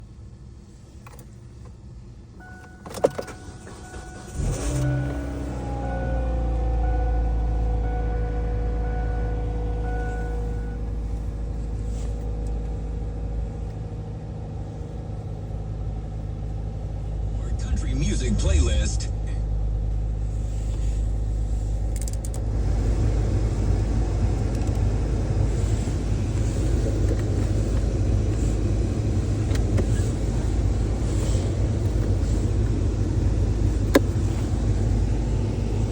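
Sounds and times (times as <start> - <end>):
car engine idling: 0.0 - 35.9
ignition key click: 2.4 - 5.3, 21.8 - 22.5.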